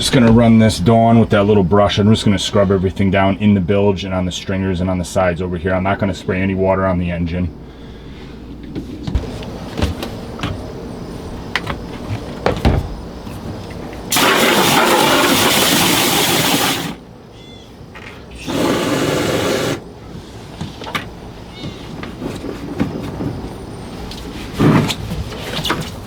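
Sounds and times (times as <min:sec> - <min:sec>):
water spraying from hose nozzle: 0:14.1 - 0:17.0, 0:18.4 - 0:19.8.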